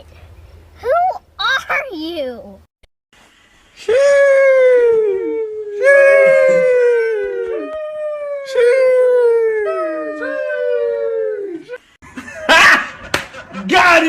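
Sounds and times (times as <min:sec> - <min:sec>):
dog howling: 0:04.0 - 0:11.8.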